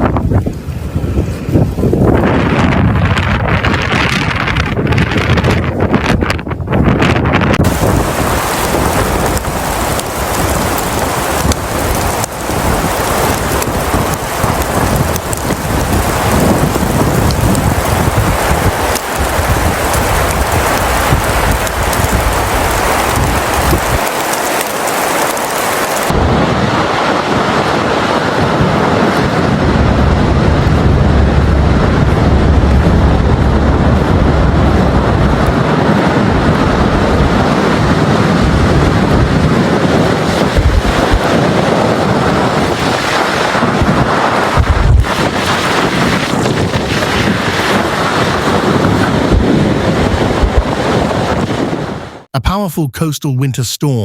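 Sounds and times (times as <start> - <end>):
wind buffeting microphone: 0.0 - 52.3.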